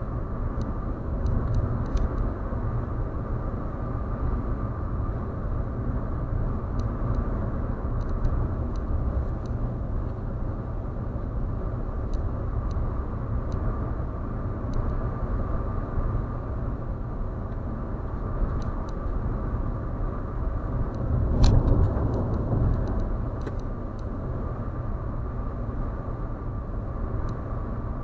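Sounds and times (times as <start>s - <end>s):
road and tyre noise: 0.0s - 28.0s
light ticks: 0.6s - 2.3s, 6.7s - 7.3s, 8.0s - 10.2s, 12.1s - 12.8s, 13.5s - 13.7s, 14.7s - 15.0s, 17.5s - 19.2s, 20.9s - 24.1s.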